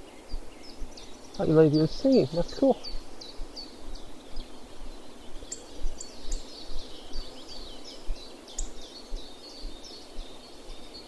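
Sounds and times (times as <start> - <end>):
small songbirds chirping: 0.0 - 11.0
wind buffeting microphone: 0.2 - 10.9.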